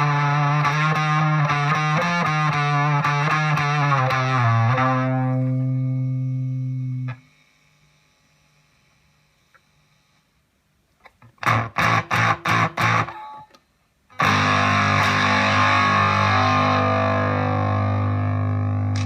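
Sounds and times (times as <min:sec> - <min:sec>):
fuzz electric guitar chords: 0:00.0 - 0:07.6, 0:11.4 - 0:13.5, 0:14.1 - 0:19.0.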